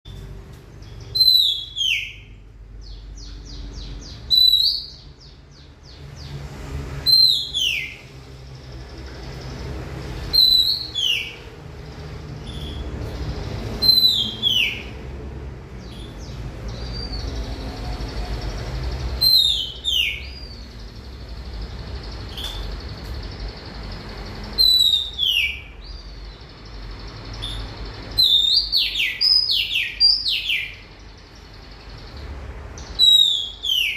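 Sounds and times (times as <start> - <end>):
songbird whistling song: 0.8 - 6.3, 7.0 - 8.1, 10.2 - 11.5, 13.7 - 15.0, 15.8 - 20.9, 22.0 - 32.1, 32.8 - 33.9.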